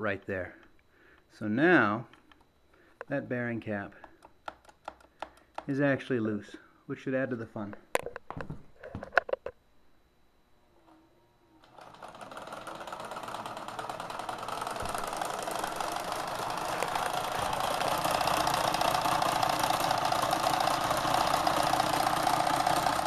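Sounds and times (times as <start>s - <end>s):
sewing machine clattering: 11.6s - 23.0s.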